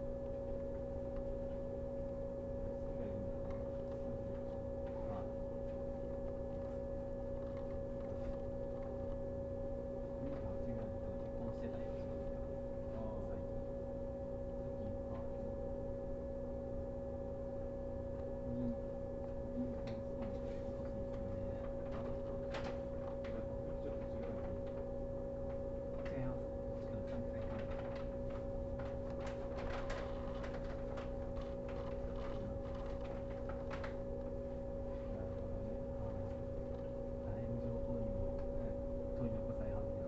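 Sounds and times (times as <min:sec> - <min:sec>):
electric train car hum: 0:00.0 - 0:40.0
faint clicks and ticks: 0:03.2 - 0:09.3, 0:19.2 - 0:37.0.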